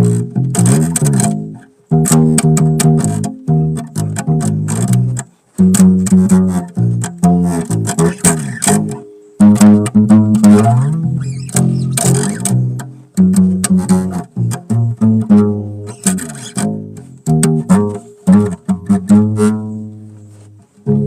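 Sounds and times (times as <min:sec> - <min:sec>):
bass guitar plucked notes: 0:00.0 - 0:21.0.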